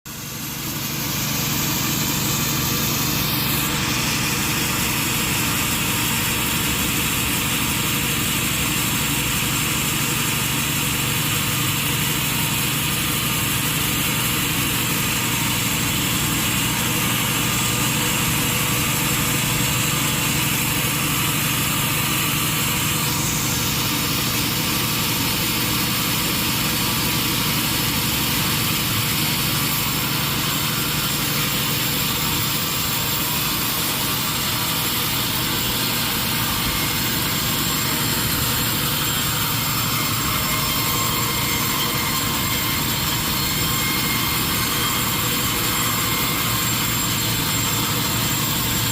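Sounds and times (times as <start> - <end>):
sawmill machinery droning: 0.1 - 48.9.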